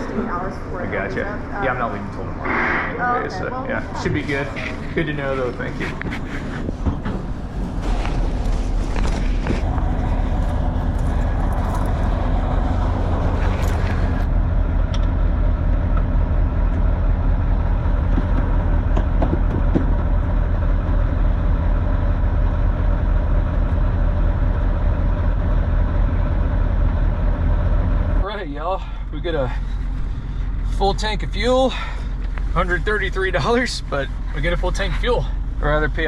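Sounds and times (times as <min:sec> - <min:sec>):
diesel engine running: 0:00.0 - 0:36.0
rustling and clicks: 0:04.6 - 0:14.3.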